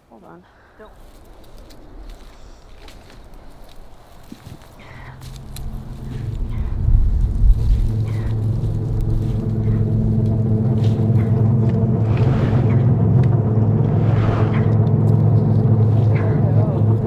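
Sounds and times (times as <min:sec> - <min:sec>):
machine humming: 0:04.8 - 0:17.0
brief rushes of noise: 0:12.0 - 0:15.5.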